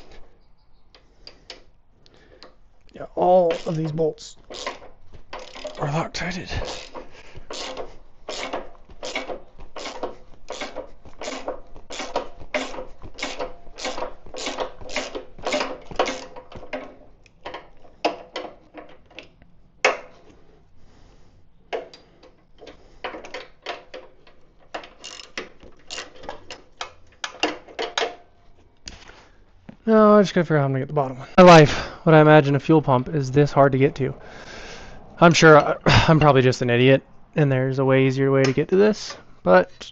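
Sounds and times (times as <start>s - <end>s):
socket ratchet clicking: 3.4s - 5.8s, 6.6s - 16.4s, 24.7s - 26.2s.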